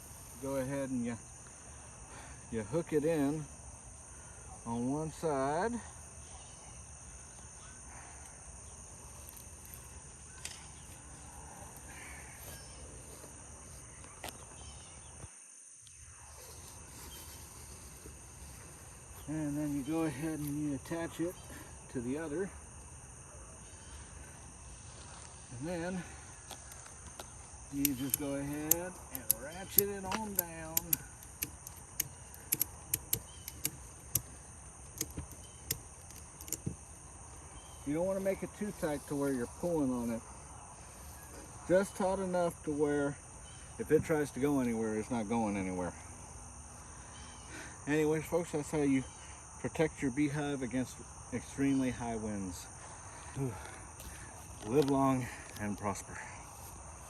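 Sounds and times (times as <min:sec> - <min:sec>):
crickets chirring: 0:00.0 - 0:57.0
insect buzz: 0:00.0 - 0:57.0
ratchet strap buckle clicking: 0:09.2 - 0:09.9, 0:27.7 - 0:36.8.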